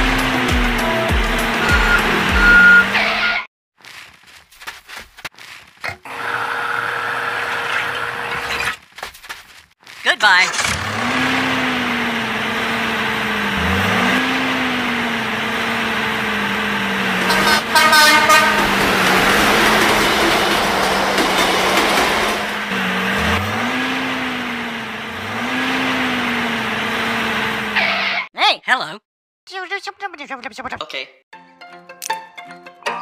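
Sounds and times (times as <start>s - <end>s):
tractor engine running: 0.0s - 2.9s, 10.6s - 27.8s
short horn toot: 17.2s - 18.7s.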